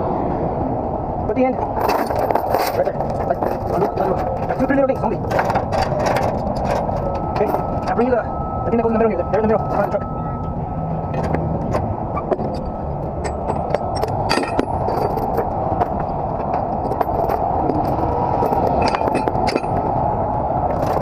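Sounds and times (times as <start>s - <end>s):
metal chains clinking and rattling: 1.7s - 8.0s, 12.5s - 16.1s, 16.7s - 19.9s.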